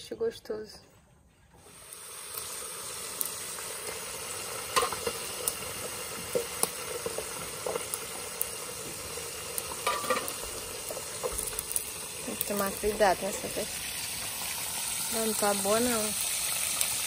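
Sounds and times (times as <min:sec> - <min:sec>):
oil popping: 0:01.6 - 0:15.1
fish sizzling in a pan: 0:01.6 - 0:17.0.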